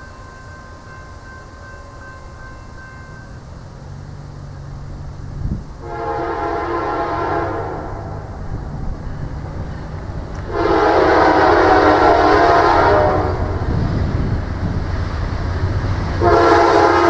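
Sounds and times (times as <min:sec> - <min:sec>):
train rumbling: 0:00.0 - 0:17.0
locomotive air horn blasts: 0:05.8 - 0:08.5, 0:10.5 - 0:13.6, 0:16.2 - 0:17.0.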